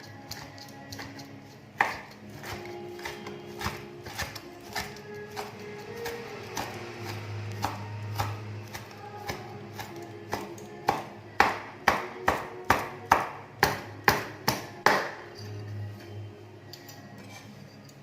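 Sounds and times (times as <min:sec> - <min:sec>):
metal utensil clanking on cookware: 0:15.2 - 0:18.0.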